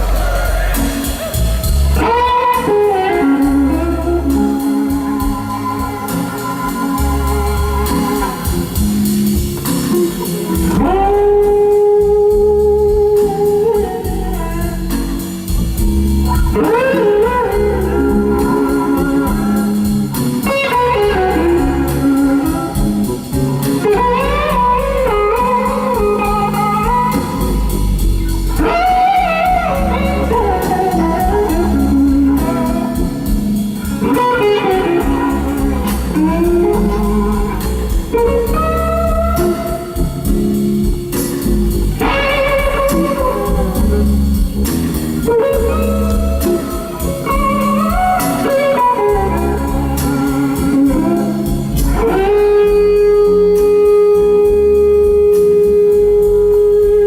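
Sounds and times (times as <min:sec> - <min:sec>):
bass line: 0:00.0 - 0:57.0
electric guitar solo: 0:00.0 - 0:57.0.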